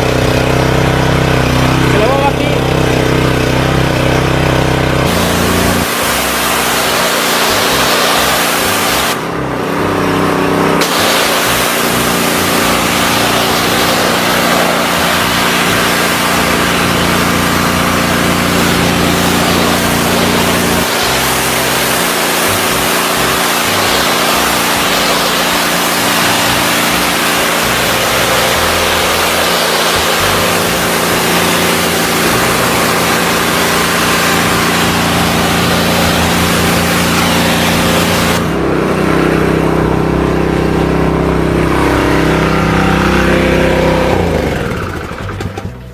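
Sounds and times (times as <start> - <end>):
pressure washer engine running: 0.0 - 45.9
pressure washer spray hiss: 5.0 - 9.3, 10.8 - 38.5.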